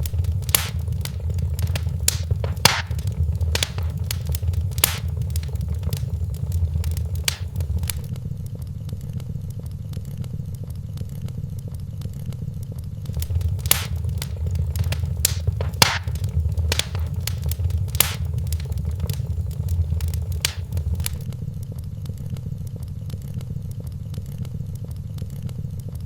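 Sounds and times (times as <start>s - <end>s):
wood fire crackling and popping: 0.0s - 8.1s, 13.1s - 21.3s
low rumble of flame: 0.0s - 8.6s, 13.0s - 21.4s.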